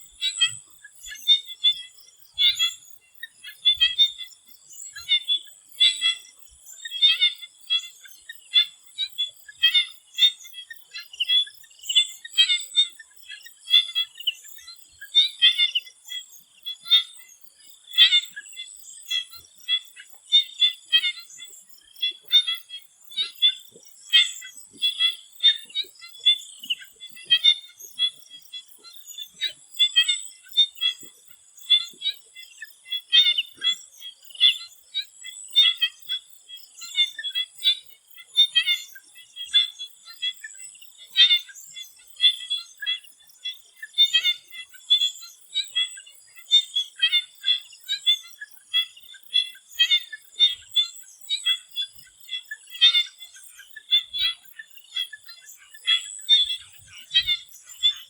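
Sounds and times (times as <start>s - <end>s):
frogs calling: 0.0s - 58.0s.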